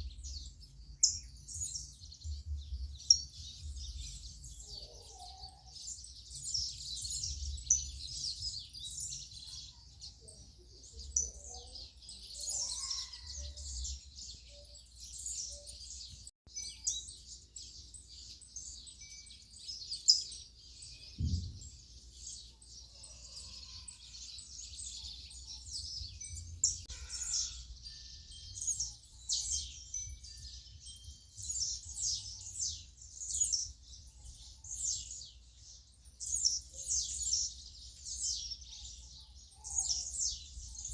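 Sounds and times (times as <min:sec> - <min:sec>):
small birds chirping: 0:00.0 - 0:40.9
short thump: 0:21.2 - 0:21.8.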